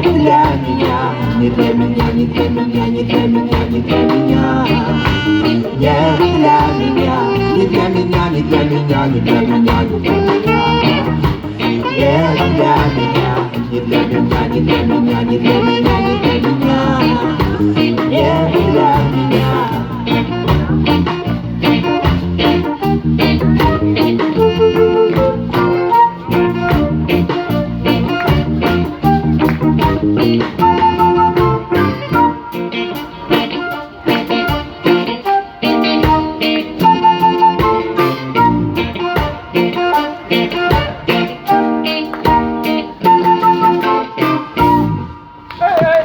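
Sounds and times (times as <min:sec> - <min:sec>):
reggae band playing: 0:00.0 - 0:46.0.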